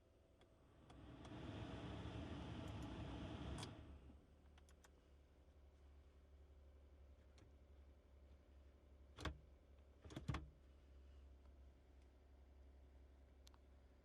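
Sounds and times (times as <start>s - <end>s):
blower fan rushing air: 0.8s - 4.2s.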